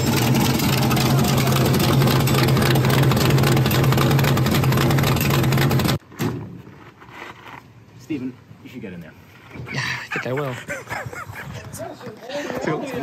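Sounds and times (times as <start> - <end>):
engine idling loudly: 0.0 - 6.0.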